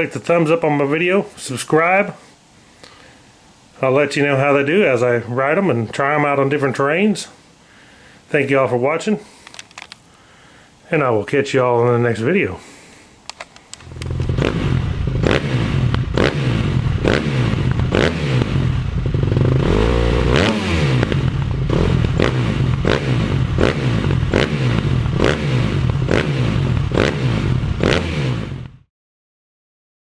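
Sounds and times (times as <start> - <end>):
motorcycle engine revving: 13.8 - 28.9.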